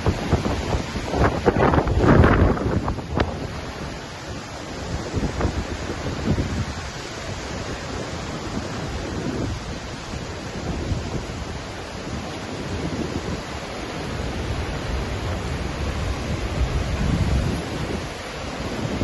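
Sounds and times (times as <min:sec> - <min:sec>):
waterfall rushing: 0:00.0 - 0:19.0
wind buffeting microphone: 0:00.0 - 0:19.0.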